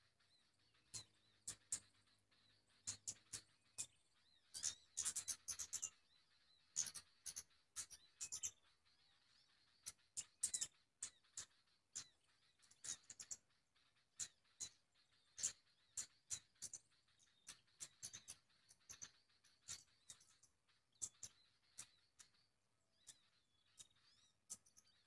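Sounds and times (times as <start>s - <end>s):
small birds chirping: 0.0s - 25.0s
sweeping bird calls: 0.0s - 25.0s.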